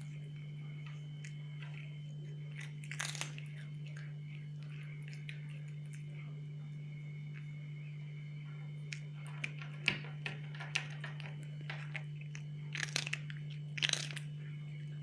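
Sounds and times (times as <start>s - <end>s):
steady low hum: 0.0s - 15.0s
cat crunching dry treats: 1.2s - 6.1s, 8.9s - 14.4s.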